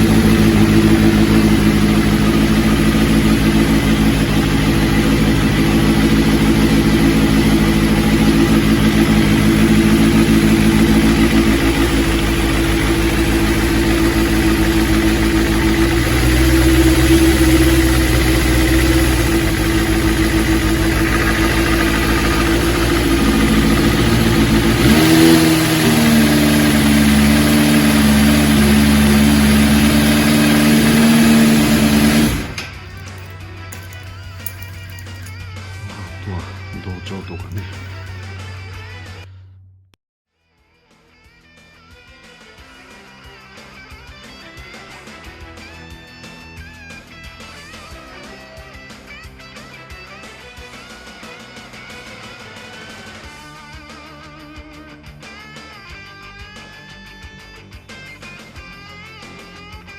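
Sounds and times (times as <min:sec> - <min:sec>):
motorcycle engine idling: 0:00.0 - 0:40.0.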